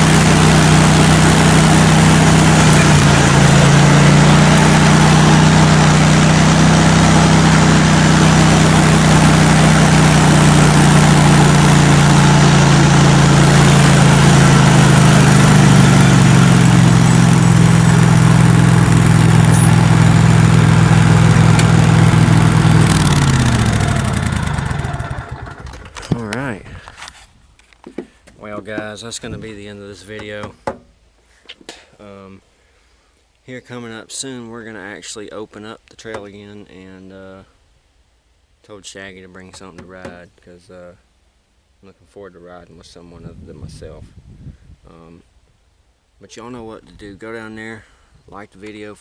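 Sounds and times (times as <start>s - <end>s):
engine idling: 0.0s - 26.3s.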